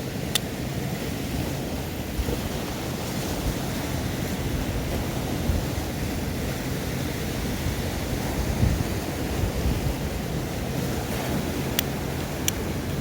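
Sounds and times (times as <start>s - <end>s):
surf washing on shore: 0.0s - 13.0s
wind on microphone: 0.0s - 13.0s.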